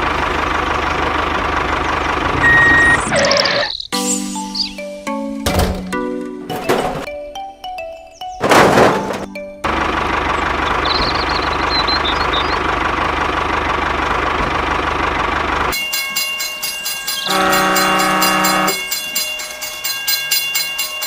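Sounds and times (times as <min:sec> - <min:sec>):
wheels clickety-clack over rail joints: 0:00.0 - 0:03.0, 0:08.4 - 0:21.0
train rumble: 0:00.0 - 0:03.1, 0:08.4 - 0:21.0
train horn: 0:17.2 - 0:19.0.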